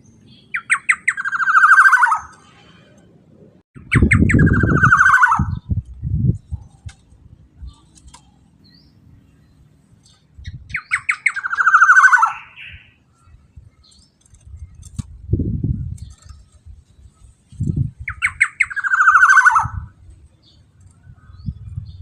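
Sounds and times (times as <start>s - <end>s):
bird rattling call: 18.1s - 19.7s.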